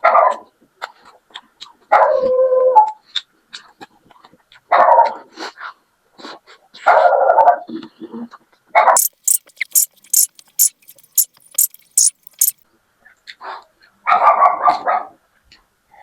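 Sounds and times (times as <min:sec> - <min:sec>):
dog barking: 0:14.1 - 0:15.2.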